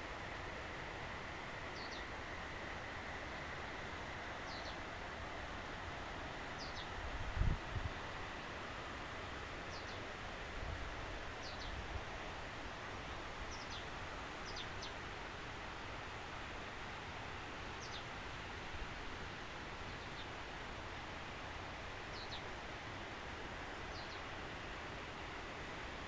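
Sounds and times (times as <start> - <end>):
outdoor hiss: 0.0 - 26.0
wind rumble on microphone: 7.1 - 8.0.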